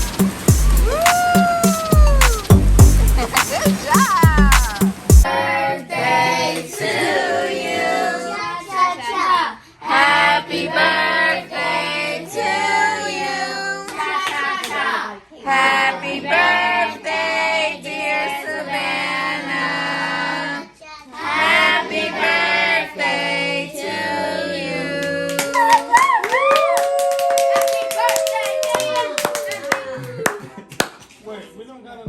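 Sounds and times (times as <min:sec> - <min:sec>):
voices singing together: 0:00.0 - 0:26.5
child singing: 0:03.8 - 0:19.1, 0:20.3 - 0:24.2.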